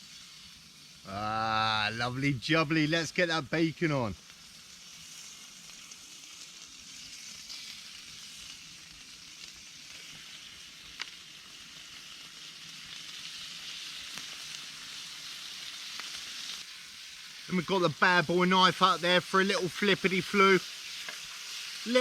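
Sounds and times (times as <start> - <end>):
bacon sizzling in a pan: 0.0 - 22.0.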